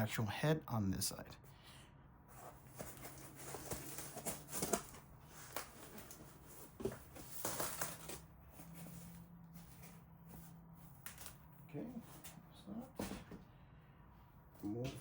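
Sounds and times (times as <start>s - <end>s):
packing material rustling and crinkling: 2.5s - 11.5s.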